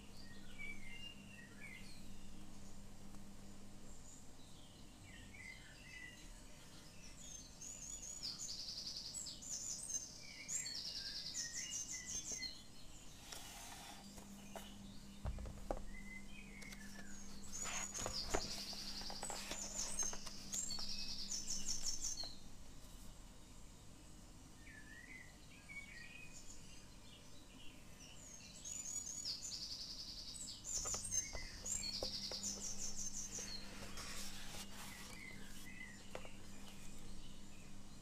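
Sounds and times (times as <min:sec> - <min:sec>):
songbirds chirping and trilling: 0:00.0 - 0:38.0
paper rustling: 0:16.6 - 0:20.9, 0:30.8 - 0:37.0.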